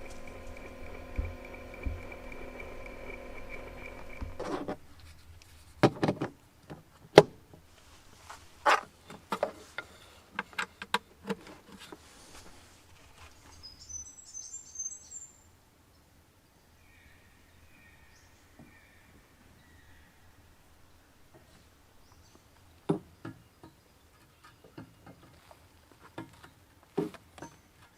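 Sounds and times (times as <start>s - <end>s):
bird high chirps: 13.5s - 15.5s.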